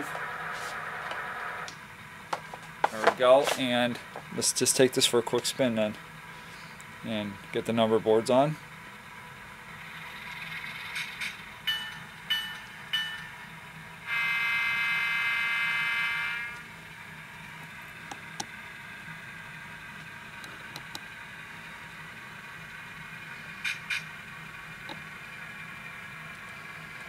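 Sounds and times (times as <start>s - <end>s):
model train engine hum: 0.0s - 27.0s
model train horn toots: 14.0s - 16.6s.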